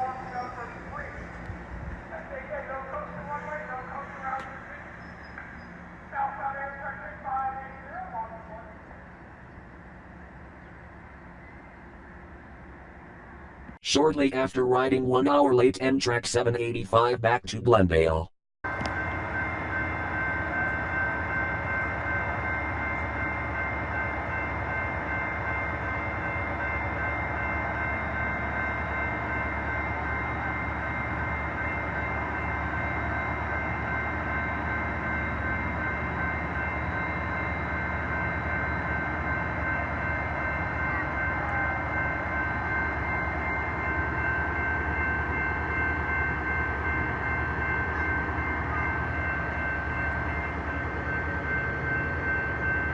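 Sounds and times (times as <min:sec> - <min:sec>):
train high whine: 0:00.0 - 0:13.8, 0:18.7 - 0:52.9
train rumble: 0:00.0 - 0:13.8.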